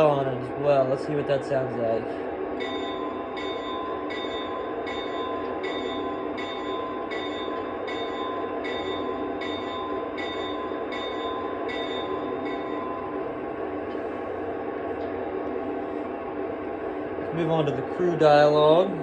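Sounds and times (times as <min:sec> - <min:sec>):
locomotive bell ringing: 0:00.0 - 0:13.6.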